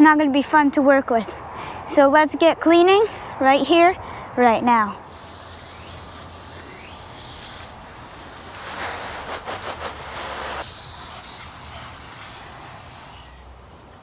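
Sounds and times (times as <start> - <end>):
sprayer clicks: 5.1 - 13.1
spray hissing: 5.1 - 14.0.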